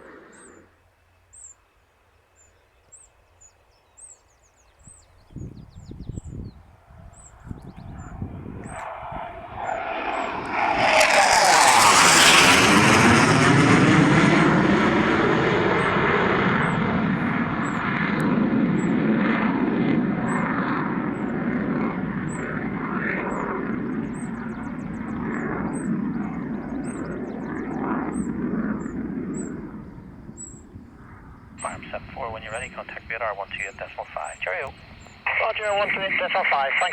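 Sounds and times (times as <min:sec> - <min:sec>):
jet rumble: 0:05.3 - 0:36.9
jet passing with whistle: 0:07.0 - 0:36.9.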